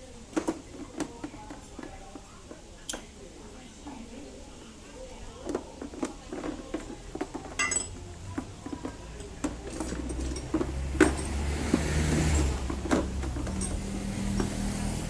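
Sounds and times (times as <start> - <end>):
tools and parts clinking: 5.4 - 15.0.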